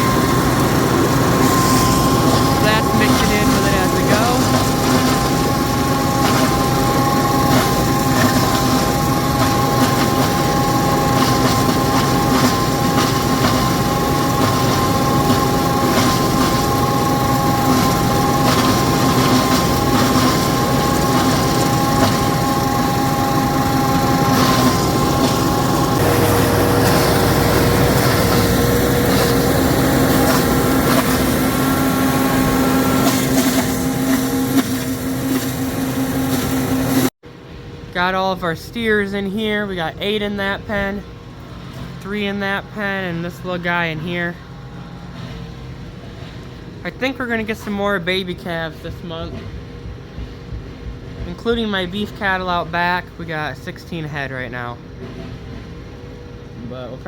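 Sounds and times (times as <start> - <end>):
feed grinder running: 0.0 - 37.1.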